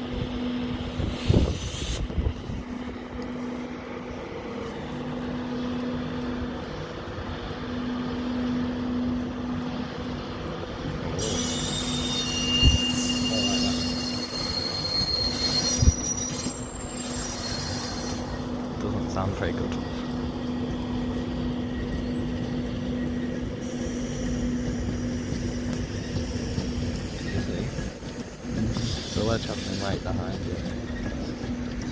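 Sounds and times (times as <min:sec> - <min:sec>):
train hum: 0:00.0 - 0:31.9
high-pitched wheel squeal: 0:11.2 - 0:18.6, 0:28.6 - 0:31.6.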